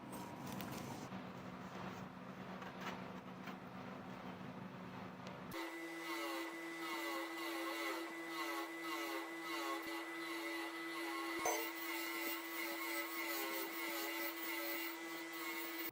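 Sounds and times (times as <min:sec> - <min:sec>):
small electric motor humming: 0:05.5 - 0:15.9.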